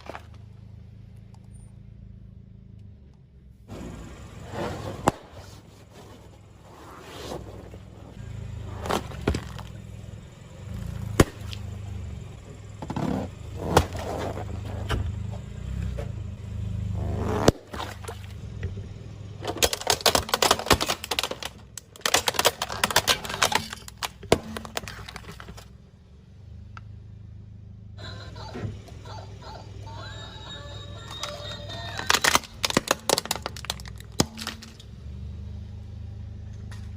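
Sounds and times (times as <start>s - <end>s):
tyre crushing crunchy objects: 0.0s - 0.7s, 3.7s - 9.9s, 12.8s - 15.2s, 16.9s - 18.5s, 19.4s - 25.7s, 31.2s - 34.8s
car low rumble: 0.0s - 36.9s.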